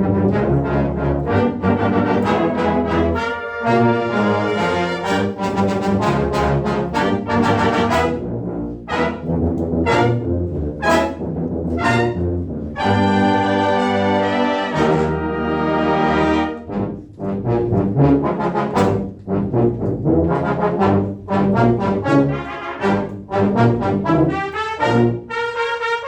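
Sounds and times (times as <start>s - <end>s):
brass ensemble playing: 0.0s - 26.0s.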